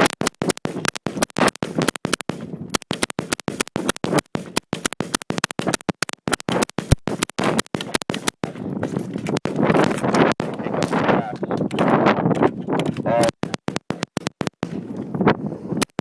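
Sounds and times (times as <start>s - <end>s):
rifles firing sharp shots: 9.2s - 13.8s.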